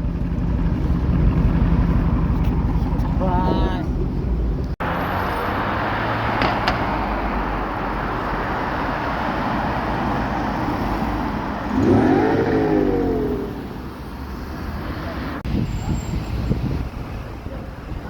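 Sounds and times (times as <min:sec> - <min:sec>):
car engine running: 0:00.0 - 0:04.7
car engine revving: 0:11.6 - 0:15.4.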